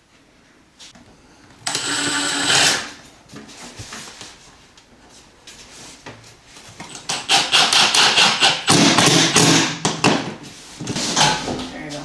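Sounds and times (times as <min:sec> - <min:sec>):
hardware knocking and clattering: 0:10.9 - 0:11.7.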